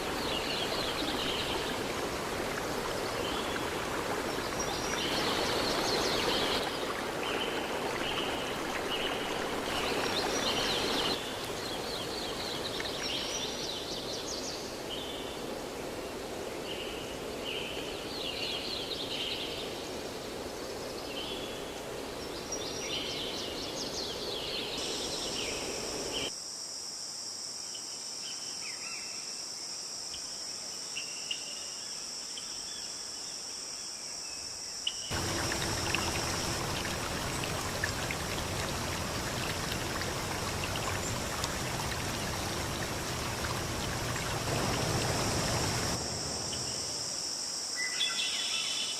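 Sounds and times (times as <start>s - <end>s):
stream water running: 0.0s - 26.3s, 35.1s - 48.2s
birds chirping: 35.1s - 47.0s
high-pitched insect drone: 44.5s - 48.8s.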